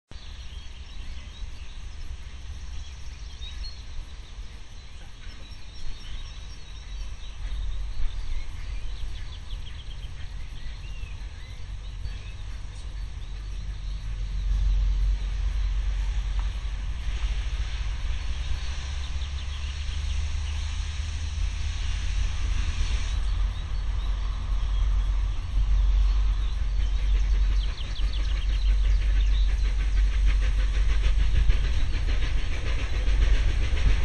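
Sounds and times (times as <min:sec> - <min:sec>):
steady low rumble: 0:00.1 - 0:34.0
birds chirping and singing: 0:02.8 - 0:16.2, 0:23.1 - 0:33.8.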